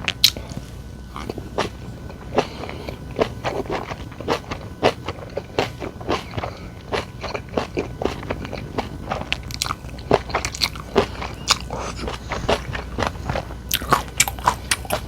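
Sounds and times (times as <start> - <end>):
person chewing and crunching food: 0.0 - 15.0.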